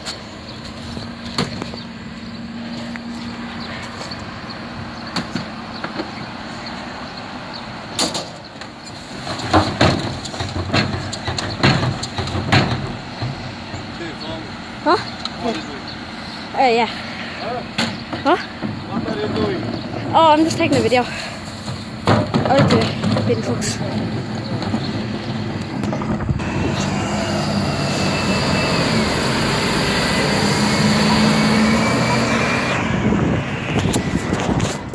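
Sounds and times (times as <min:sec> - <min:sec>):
bin lorry running: 0:00.0 - 0:34.9
bins knocking and clattering: 0:09.1 - 0:14.0, 0:17.8 - 0:25.1.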